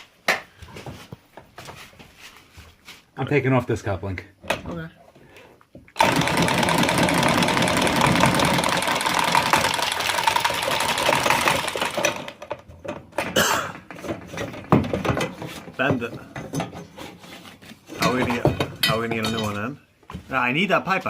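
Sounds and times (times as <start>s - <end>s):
power tool running: 6.0s - 12.5s.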